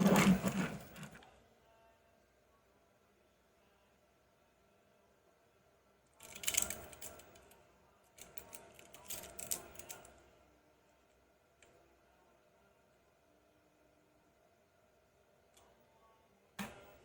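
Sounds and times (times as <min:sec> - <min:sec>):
toy vehicles clicking and rattling: 0:06.2 - 0:07.5, 0:08.2 - 0:10.0.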